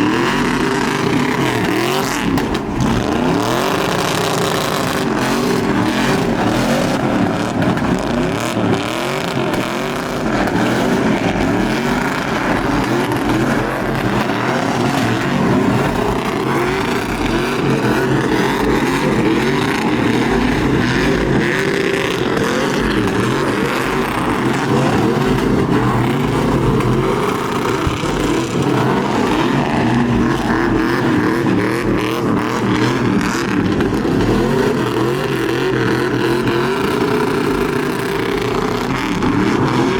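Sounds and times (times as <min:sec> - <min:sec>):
truck engines revving: 0:00.0 - 0:39.9.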